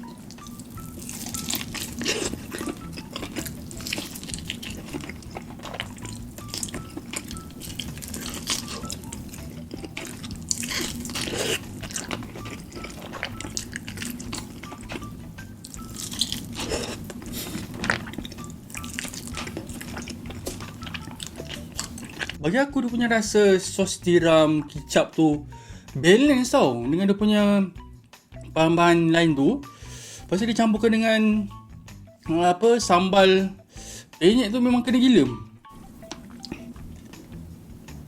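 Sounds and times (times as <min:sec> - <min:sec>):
steady low hum: 0:00.0 - 0:22.4
wet chewing and lip smacks: 0:00.3 - 0:22.4.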